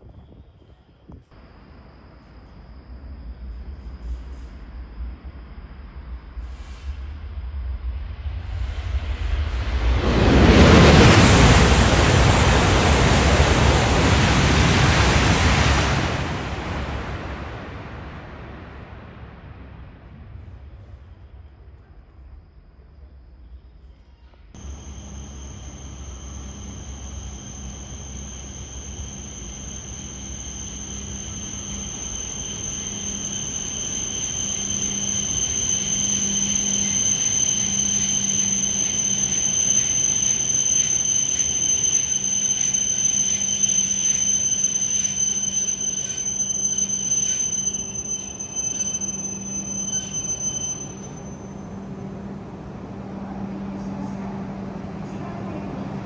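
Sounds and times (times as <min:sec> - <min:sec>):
train running rumble: 0:01.2 - 0:22.9, 0:24.6 - 0:56.0
high-pitched brake squeal: 0:24.2 - 0:51.9.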